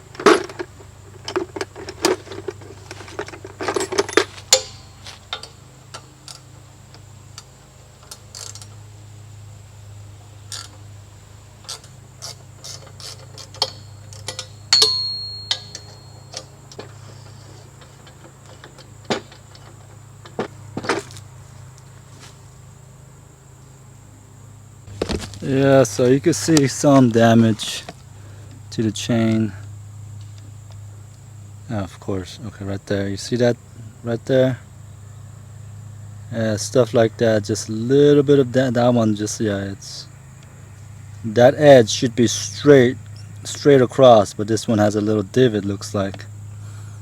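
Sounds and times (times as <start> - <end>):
steady low hum: 0.0 - 47.0
clicks and knocks of handling: 0.1 - 8.8, 11.6 - 22.4, 24.9 - 28.1
high metallic ping: 4.5 - 5.0, 14.4 - 16.5.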